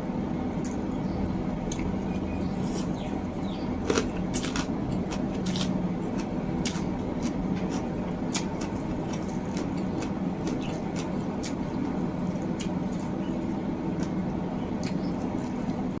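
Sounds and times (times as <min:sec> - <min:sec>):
steady low hum: 0:00.0 - 0:16.0
wet chewing and squishing: 0:03.8 - 0:16.0.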